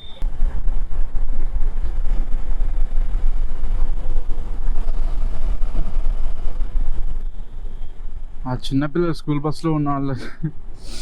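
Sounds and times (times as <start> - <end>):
wind rumbling on microphone: 0.0 - 8.7.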